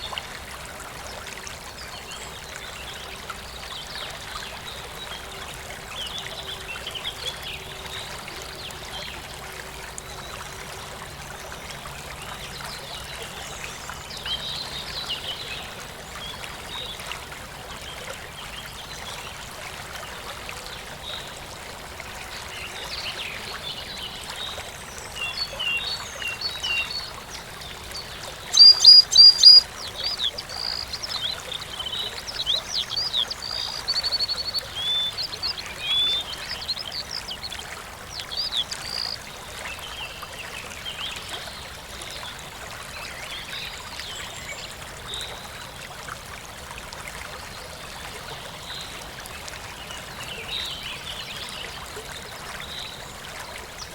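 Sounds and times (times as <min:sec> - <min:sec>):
stream trickling: 0:00.0 - 0:53.9
songbirds chirping: 0:22.5 - 0:41.2.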